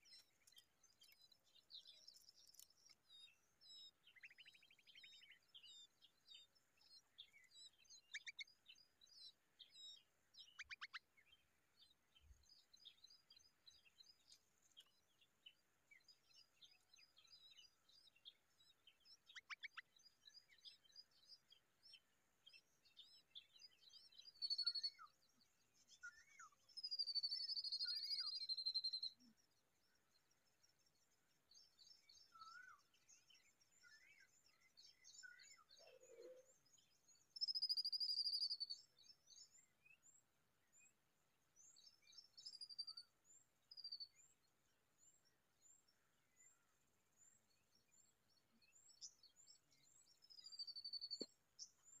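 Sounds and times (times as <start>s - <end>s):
birds chirping: 0.0s - 52.0s.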